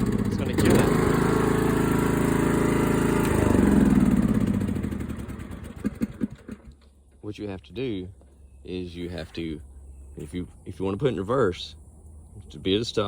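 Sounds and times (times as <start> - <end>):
lawn tractor engine running: 0.0 - 6.8
engine dying: 0.0 - 6.9.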